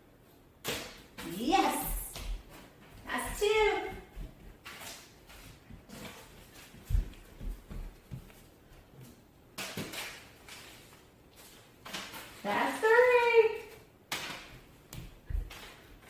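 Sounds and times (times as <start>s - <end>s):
paper rustle: 4.2s - 12.7s.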